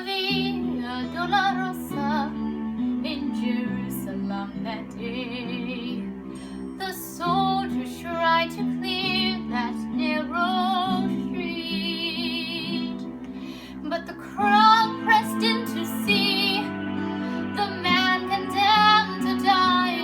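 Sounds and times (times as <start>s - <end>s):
woman singing with vibrato: 0.0s - 2.4s, 3.0s - 6.1s, 6.8s - 13.1s, 13.8s - 20.0s
sustained instrumental accompaniment: 12.4s - 20.0s.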